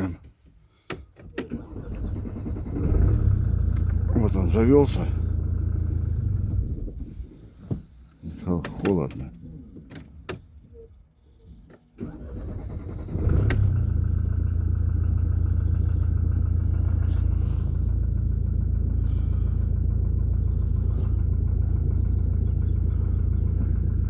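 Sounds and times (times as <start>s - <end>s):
diesel engine idling: 1.5s - 7.6s, 12.0s - 24.0s.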